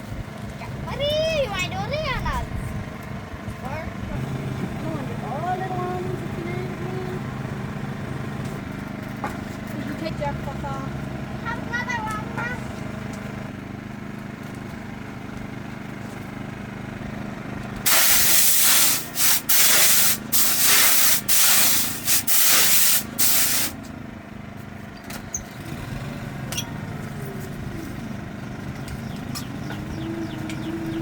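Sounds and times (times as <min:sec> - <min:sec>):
engine running: 0:00.0 - 0:31.0
loud hissing spray: 0:17.9 - 0:23.8.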